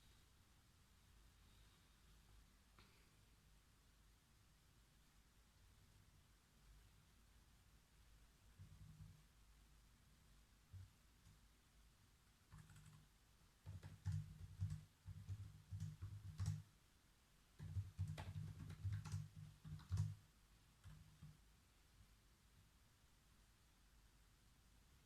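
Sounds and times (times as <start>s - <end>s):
typing on computer keyboard: 12.5s - 16.7s, 17.6s - 20.2s, 20.8s - 21.4s.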